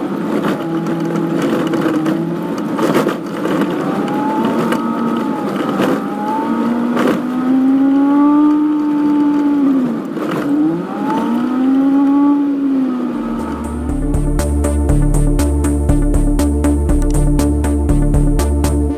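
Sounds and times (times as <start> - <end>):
sped-up car engine sweeps: 0.0 - 18.9.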